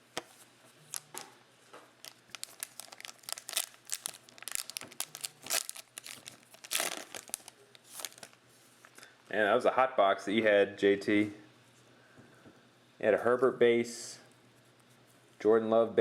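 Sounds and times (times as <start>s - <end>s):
wrapper crinkling and tearing: 0.9s - 1.2s, 2.0s - 8.4s.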